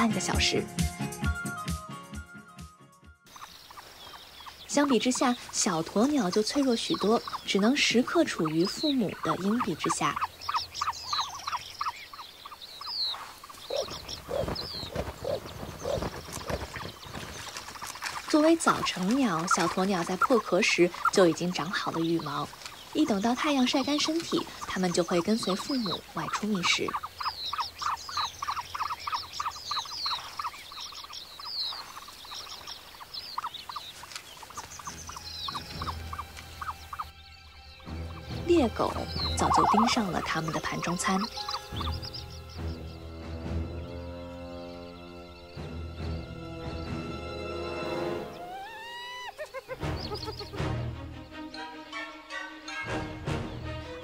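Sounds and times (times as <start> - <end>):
ostrich chicks chirping: 3.3 - 47.0, 48.1 - 51.7, 53.2 - 53.8.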